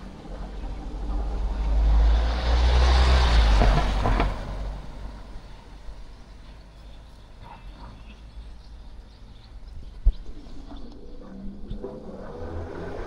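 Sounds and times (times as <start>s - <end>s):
vehicle passing by: 0.0s - 6.6s, 10.6s - 13.0s.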